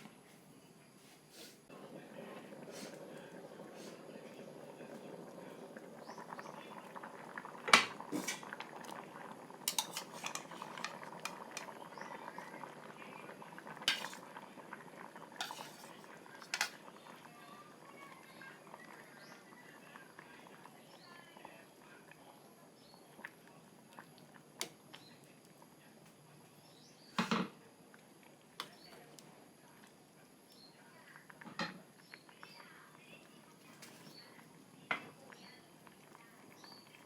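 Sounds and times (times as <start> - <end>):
curry simmering hiss: 0.0 - 37.0
spoon clinking against pot: 9.7 - 11.0.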